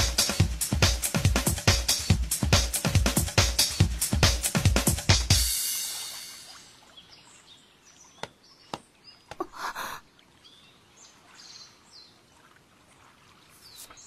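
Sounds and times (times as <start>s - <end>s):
music: 0.0s - 6.7s
small birds chirping: 6.9s - 12.2s, 13.5s - 14.0s.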